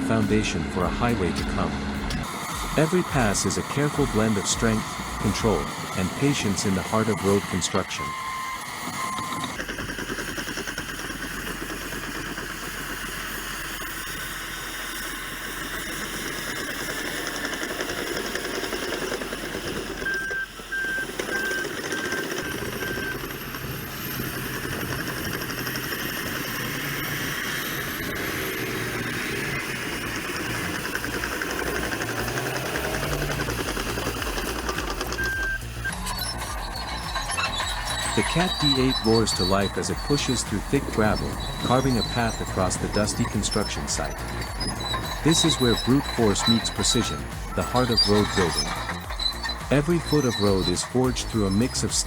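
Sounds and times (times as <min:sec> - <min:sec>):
bulldozer diesel engine under load: 0:00.0 - 0:52.0
short beeping tone: 0:32.4 - 0:52.0.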